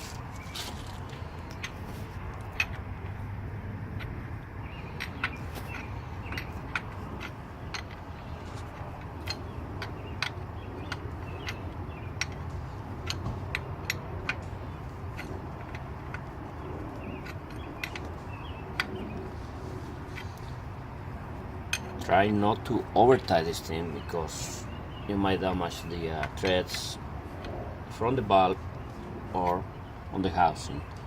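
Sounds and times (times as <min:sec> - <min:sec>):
wrench clicking: 0:04.9 - 0:19.1.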